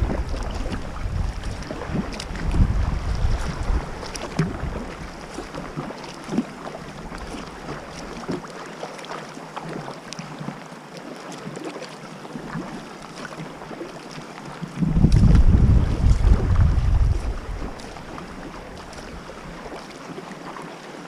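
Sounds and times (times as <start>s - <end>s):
wind buffeting microphone: 0.0s - 5.9s, 14.7s - 19.8s
water splashing around kayak: 0.0s - 21.0s.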